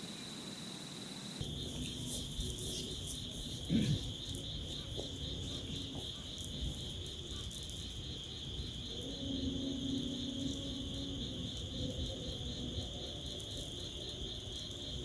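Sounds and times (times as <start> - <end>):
insect chorus drone: 0.0 - 15.0.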